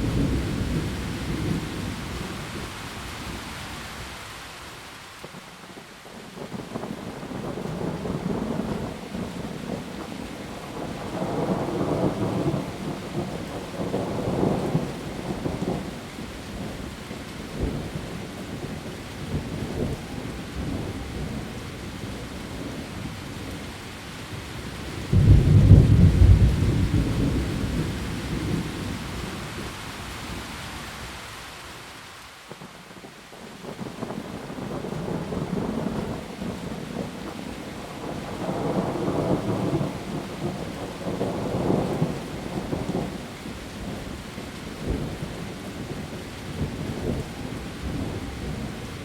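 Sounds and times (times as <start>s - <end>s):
heavy rain on leaves: 0.0s - 49.0s
rolling thunder: 25.0s - 29.7s, 38.0s - 43.2s
loud thunderclap: 25.1s - 28.9s.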